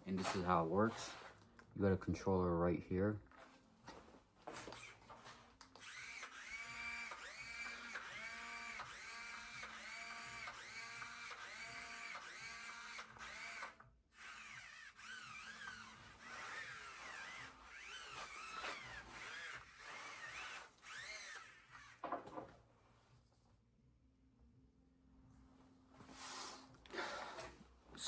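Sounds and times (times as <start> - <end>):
small electric motor whining: 5.7 - 22.0.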